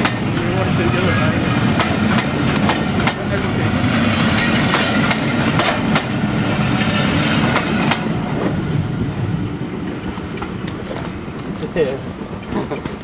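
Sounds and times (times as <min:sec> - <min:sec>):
train coaches rumbling: 0:00.0 - 0:13.0
wheels clicking over rail joints: 0:04.3 - 0:06.1, 0:10.1 - 0:13.0.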